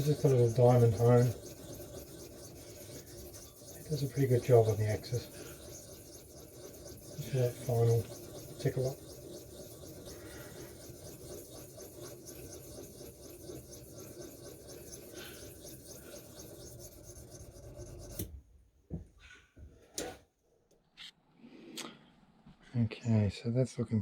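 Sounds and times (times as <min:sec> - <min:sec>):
hone rubbing steel edge: 0:00.0 - 0:18.3.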